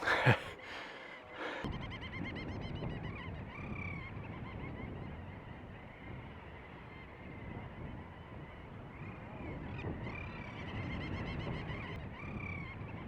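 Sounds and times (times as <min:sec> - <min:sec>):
seabird colony calling: 0:00.0 - 0:01.7.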